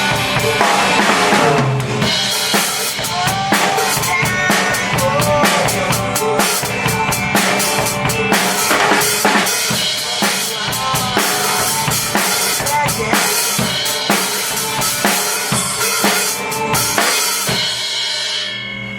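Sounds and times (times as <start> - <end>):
recorded rock song: 0.0 - 18.3
drum kit played hard: 0.0 - 18.6.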